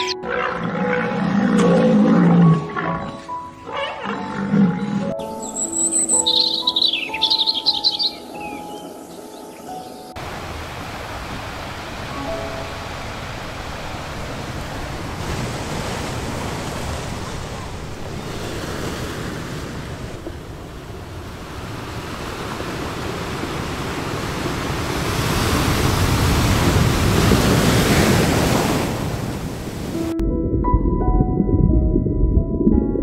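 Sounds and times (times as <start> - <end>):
surf washing onto sandy beach: 10.2 - 30.1.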